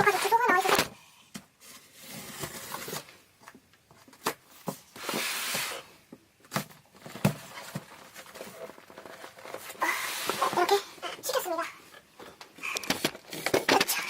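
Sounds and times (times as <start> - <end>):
box knocking and rustling: 6.1 - 10.8.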